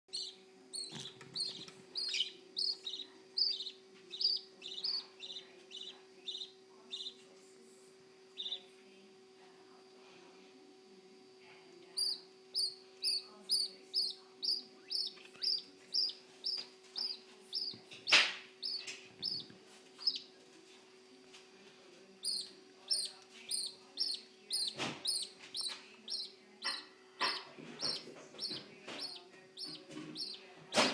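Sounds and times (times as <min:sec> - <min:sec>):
budgerigar chick cheeping: 0:00.1 - 0:07.2, 0:08.4 - 0:08.7, 0:12.0 - 0:20.3, 0:22.2 - 0:30.9
baby bird chirping: 0:00.1 - 0:07.4, 0:08.3 - 0:08.8, 0:11.9 - 0:20.4, 0:22.2 - 0:30.9
faint steady hum: 0:00.1 - 0:30.9.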